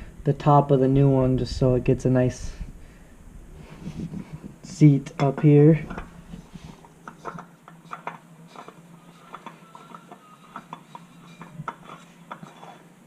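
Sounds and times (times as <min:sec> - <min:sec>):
clicks and knocks of hand work: 0:05.2 - 0:12.8.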